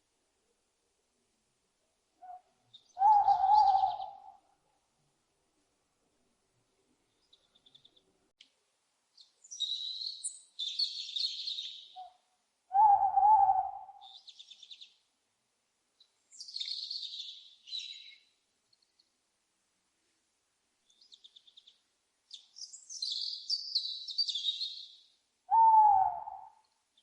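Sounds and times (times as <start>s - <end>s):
owl call: 2.2s - 4.4s, 10.7s - 14.3s, 25.5s - 26.6s
birds twittering: 2.8s - 4.3s, 9.5s - 12.1s.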